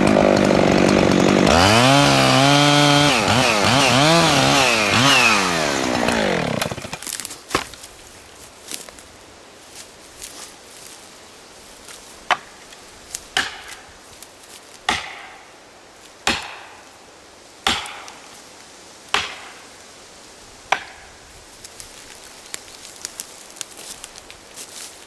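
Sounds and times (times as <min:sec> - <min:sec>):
small crackles: 0:21.5 - 0:25.0.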